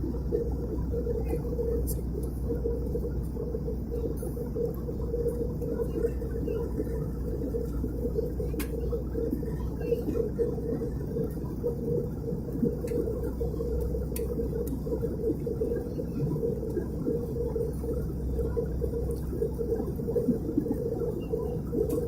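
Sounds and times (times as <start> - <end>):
airplane engines droning in cabin: 0.0 - 22.0
faint clicks: 8.5 - 8.8, 12.8 - 13.1, 13.8 - 14.9.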